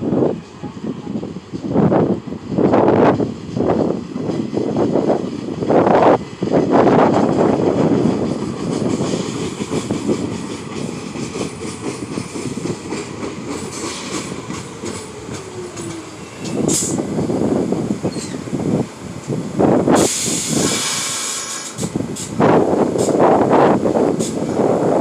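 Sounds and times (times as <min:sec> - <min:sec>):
subway train wheels clattering: 0:00.0 - 0:25.0
short sharp hiss: 0:20.0 - 0:22.3.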